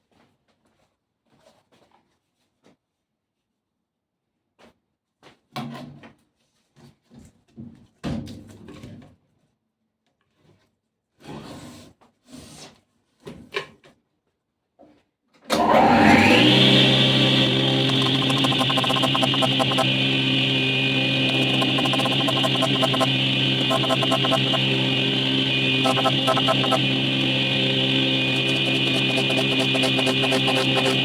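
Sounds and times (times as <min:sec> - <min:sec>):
circular saw motor whine: 0:15.6 - 0:31.0.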